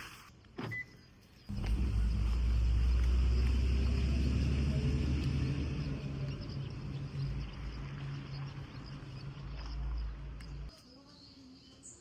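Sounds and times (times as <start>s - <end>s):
motor vehicle rumbling: 1.5s - 10.7s
insects chirping: 1.5s - 11.0s.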